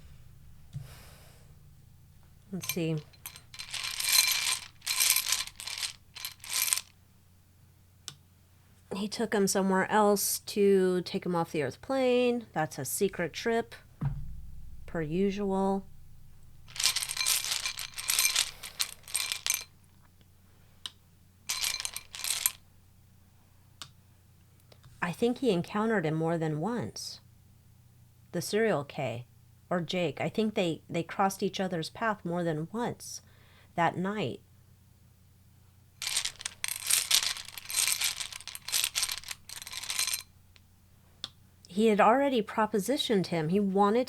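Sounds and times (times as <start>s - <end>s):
cards being shuffled by hand: 3.2s - 6.9s, 16.7s - 19.6s, 36.0s - 40.2s
cards being shuffled: 36.0s - 40.2s.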